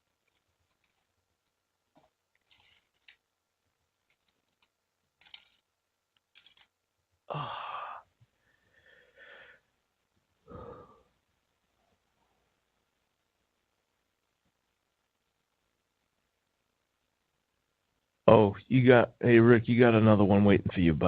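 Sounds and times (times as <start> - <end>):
person making breathy vocal sounds: 7.3 - 8.1, 10.5 - 11.0.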